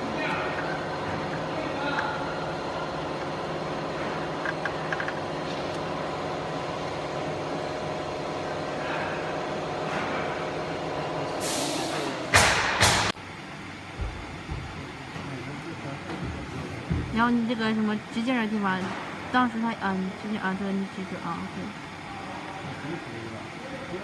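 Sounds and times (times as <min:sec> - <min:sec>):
steady machine hum: 0:00.0 - 0:24.0
rushing air bursts: 0:11.4 - 0:13.1.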